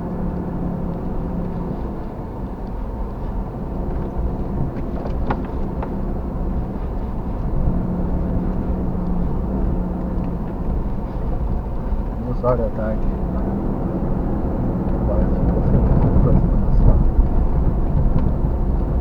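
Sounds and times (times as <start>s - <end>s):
vehicle engine and tyre rumble: 0.0s - 19.0s.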